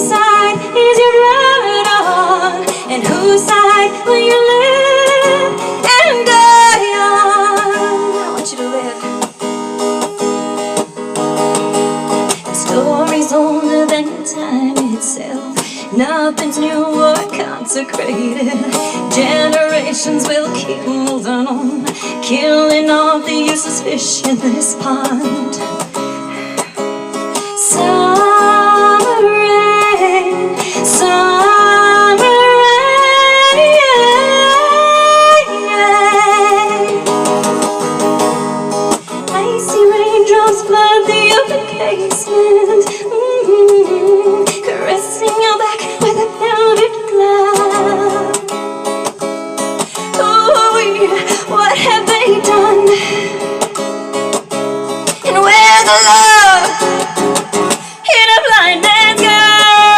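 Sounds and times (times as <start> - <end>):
wordless female vocal: 0.0 - 9.2, 12.2 - 25.8, 27.6 - 37.0, 39.0 - 48.4, 49.8 - 53.6, 55.1 - 59.9
guitar-led music: 0.0 - 59.9.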